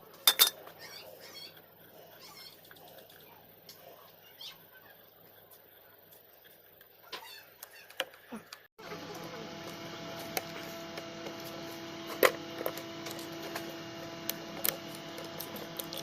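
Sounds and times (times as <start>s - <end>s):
steady hum: 8.8s - 16.0s.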